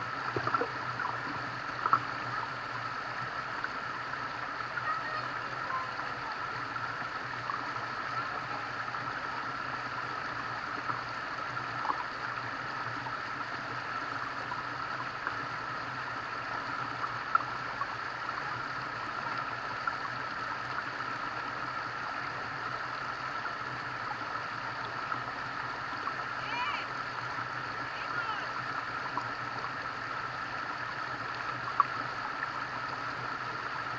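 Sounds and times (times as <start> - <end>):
stream water rushing: 0.0 - 33.9
faint ticks and clicks: 0.1 - 2.9, 16.5 - 18.4, 31.3 - 32.9.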